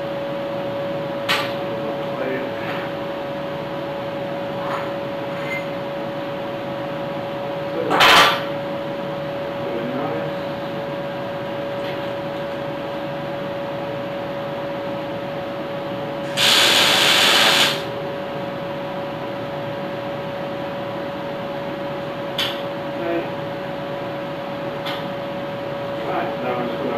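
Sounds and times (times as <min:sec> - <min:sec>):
welding arc crackling: 0:16.2 - 0:17.9
welding machine hum: 0:16.2 - 0:18.0.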